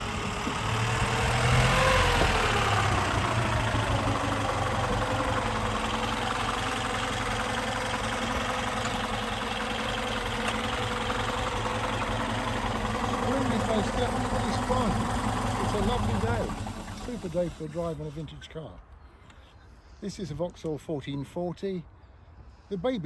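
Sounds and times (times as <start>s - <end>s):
car engine running: 0.0s - 18.1s.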